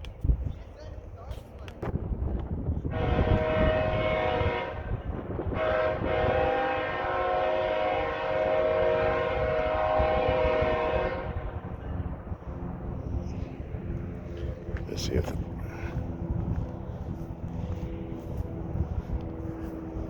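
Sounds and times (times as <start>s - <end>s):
moving train rumble: 0.0s - 20.0s
locomotive air horn: 2.8s - 11.8s.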